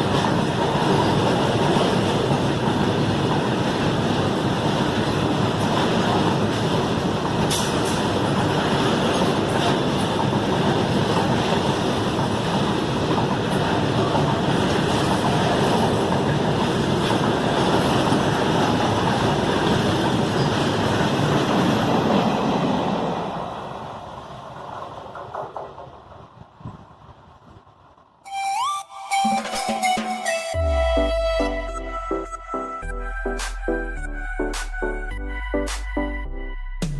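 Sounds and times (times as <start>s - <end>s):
freight train rumbling on rails: 0.0s - 28.2s.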